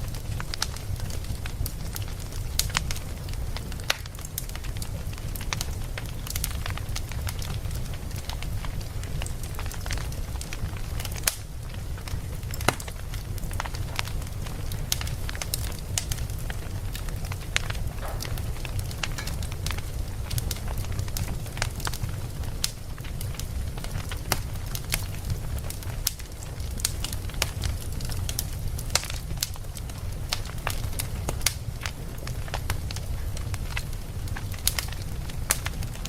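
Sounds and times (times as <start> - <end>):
campfire crackling: 0.0 - 36.0.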